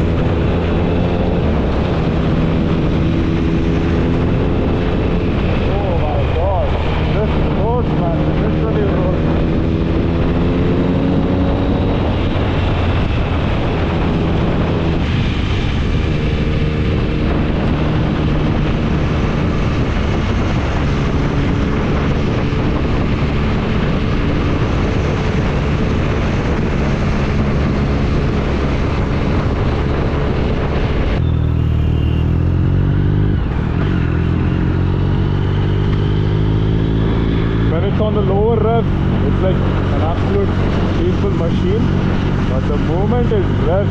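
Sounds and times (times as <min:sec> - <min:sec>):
motorcycle engine revving: 0:00.0 - 0:43.9
wind rush on microphone: 0:00.0 - 0:43.9.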